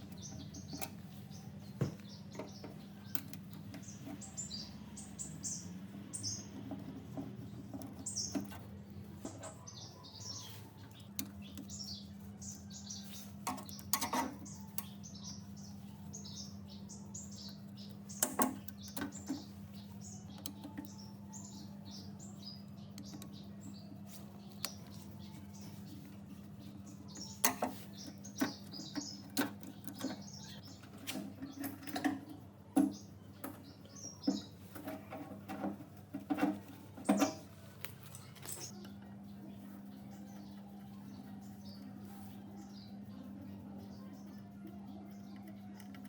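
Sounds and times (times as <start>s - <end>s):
small birds chirping: 0.0s - 46.0s
sharp clicks and knocks: 18.1s - 19.6s, 27.1s - 38.9s.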